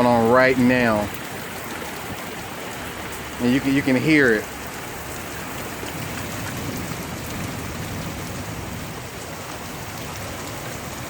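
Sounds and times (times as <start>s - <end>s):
heavy rain and hail: 0.0s - 11.0s.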